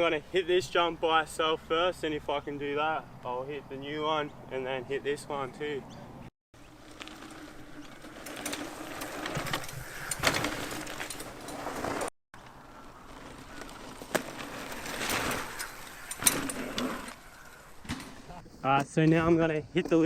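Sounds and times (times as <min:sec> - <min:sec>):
bike tyres rolling over dirt: 0:06.6 - 0:20.0.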